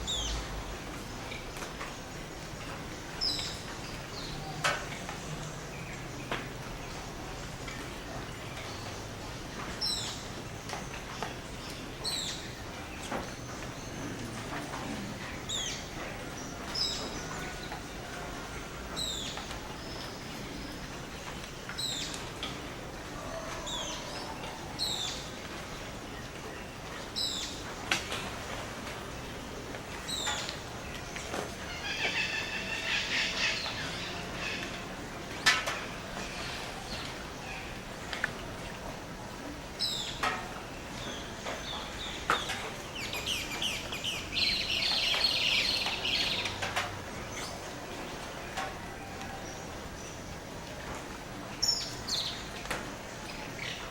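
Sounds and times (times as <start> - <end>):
steady background hiss: 0.0 - 53.9.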